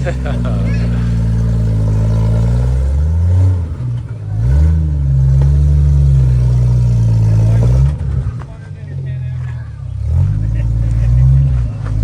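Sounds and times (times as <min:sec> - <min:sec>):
engine revving under load: 0:00.0 - 0:08.5, 0:09.4 - 0:12.0.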